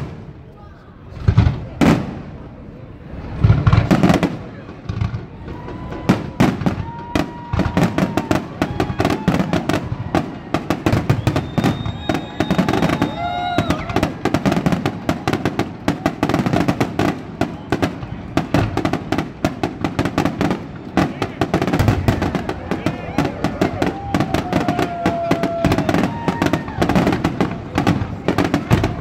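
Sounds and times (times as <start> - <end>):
fireworks crackling and popping: 0.0 - 29.0
fireworks whistling: 3.3 - 29.0.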